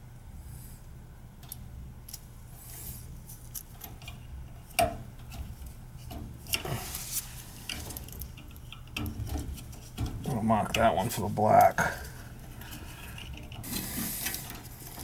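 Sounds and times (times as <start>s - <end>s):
low steady hum: 0.0s - 15.0s
clicks of handling wires and parts: 3.3s - 15.0s.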